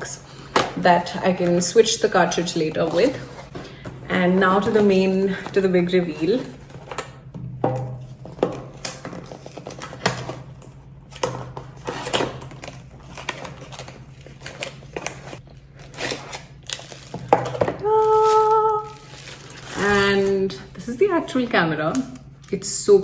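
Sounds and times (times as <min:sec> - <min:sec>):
low steady hum: 0:00.0 - 0:23.0
packaging rustling: 0:08.0 - 0:20.3.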